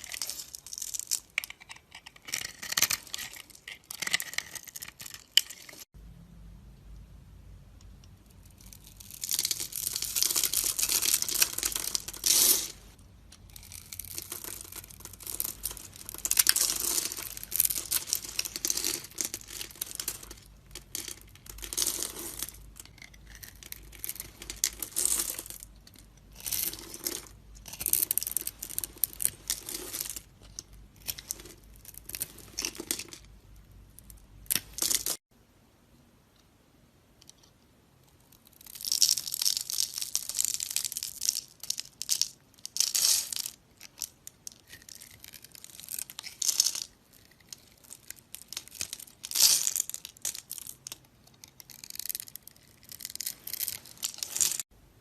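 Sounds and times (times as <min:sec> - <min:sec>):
knife scraping soap: 0:01.3 - 0:05.7.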